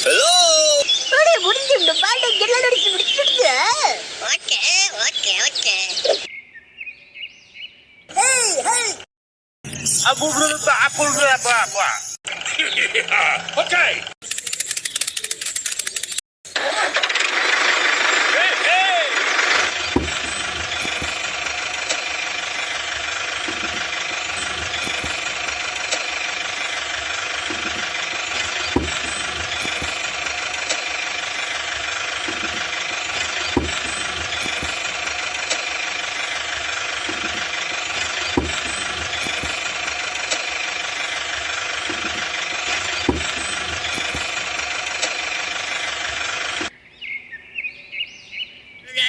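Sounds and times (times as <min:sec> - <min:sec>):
toy tractor electric motor running: 0:10.0 - 0:46.7.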